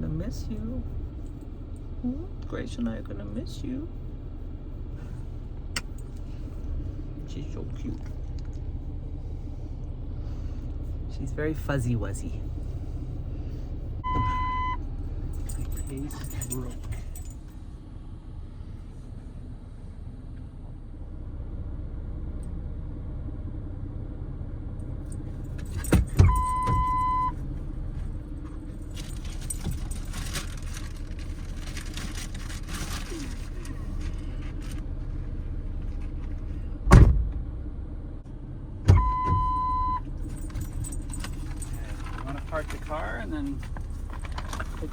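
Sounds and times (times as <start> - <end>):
low engine idle: 0.0 - 44.9
rattling and rustling: 12.1 - 17.6, 25.0 - 37.3, 40.1 - 44.9
electronic beep: 14.1 - 14.8
vehicle doors thudding shut: 25.5 - 27.2, 36.8 - 37.4, 38.8 - 39.8.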